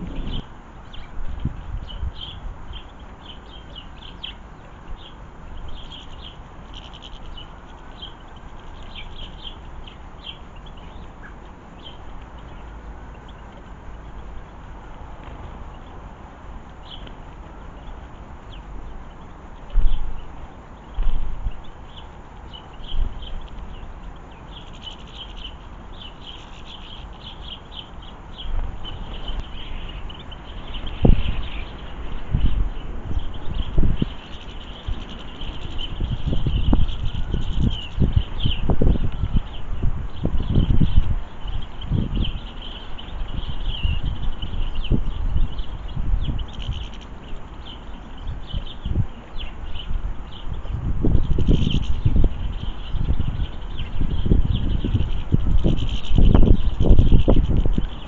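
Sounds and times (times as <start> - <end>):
storm wind: 0.0 - 3.0, 28.5 - 58.0
garden birds chirping: 0.0 - 58.0
low wind rumble: 0.0 - 58.0.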